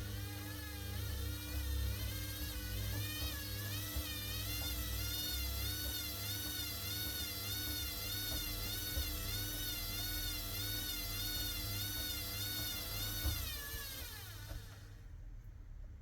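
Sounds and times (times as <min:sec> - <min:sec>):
washing machine motor whining: 0:00.0 - 0:15.4.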